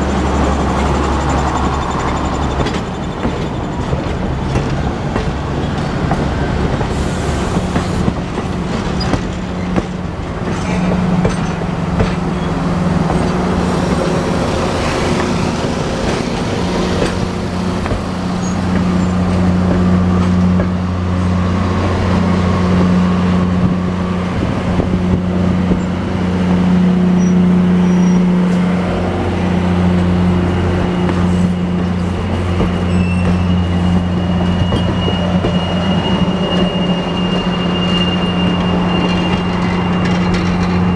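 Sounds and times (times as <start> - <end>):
diesel locomotive engine running: 0.0 - 40.9
high wheel squeal: 6.9 - 9.8, 27.1 - 40.9.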